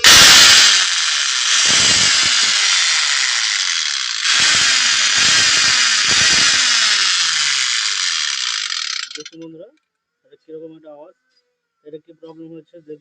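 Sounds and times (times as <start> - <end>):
cutter machine whining: 0.0 - 9.4
gear grinding clatter: 0.0 - 9.4.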